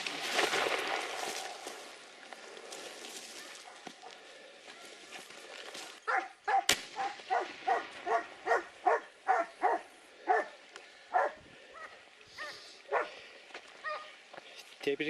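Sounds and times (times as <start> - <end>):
sharp crack: 0.0 - 2.1, 6.5 - 8.3
dog barking: 6.1 - 10.5, 11.1 - 13.1, 13.8 - 14.2.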